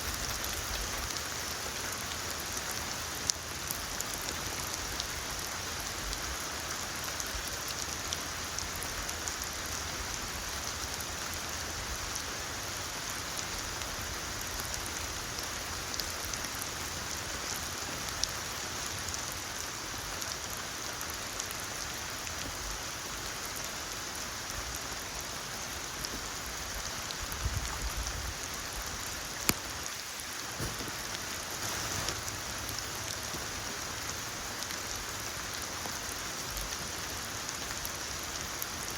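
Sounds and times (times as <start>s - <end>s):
steady rainfall hiss: 0.0s - 38.9s
rain drop hits: 25.8s - 38.9s.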